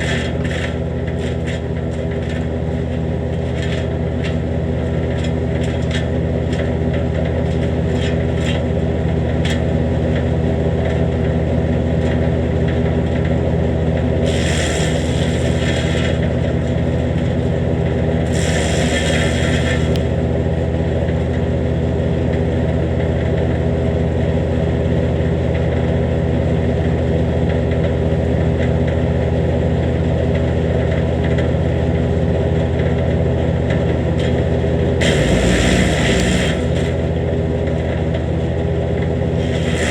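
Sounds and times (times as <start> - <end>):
wood chipper engine running: 0.0 - 39.9
wood chipping bursts: 35.0 - 37.0, 39.4 - 39.9.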